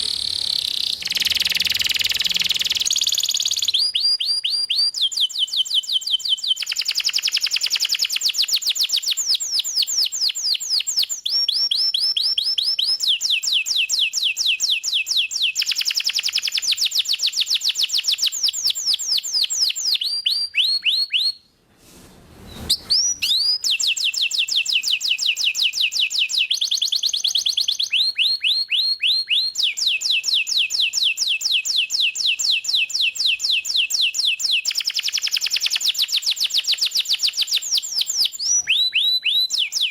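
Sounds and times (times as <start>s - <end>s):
canary singing: 0.0s - 7.8s, 22.6s - 25.9s.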